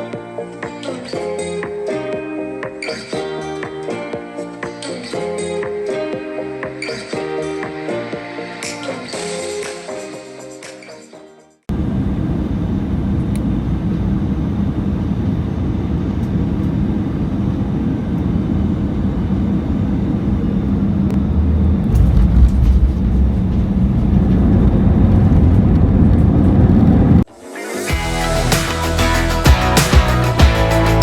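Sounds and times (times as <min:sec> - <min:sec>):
airplane cabin engine rumble: 0:11.7 - 0:27.3
deep rumble of wheels on runway: 0:11.7 - 0:27.3.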